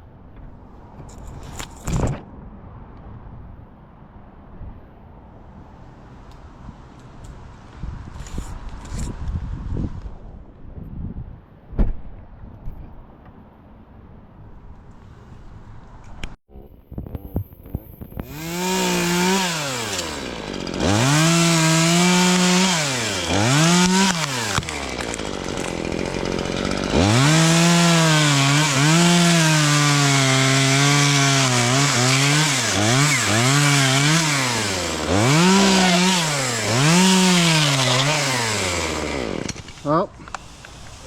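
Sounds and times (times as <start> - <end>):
chainsaw cutting branches: 18.0 - 41.0.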